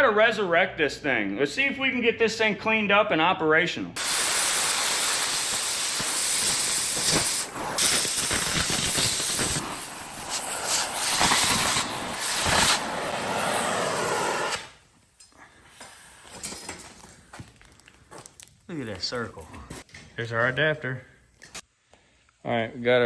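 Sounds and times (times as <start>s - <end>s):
loud hissing rush: 4.0s - 14.8s.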